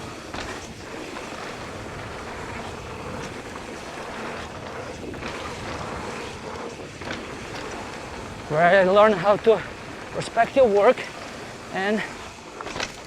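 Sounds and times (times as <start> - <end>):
tyre and trail noise: 0.0 - 13.0
faint knocks from bike: 0.3 - 1.3, 6.6 - 8.0, 12.6 - 13.0.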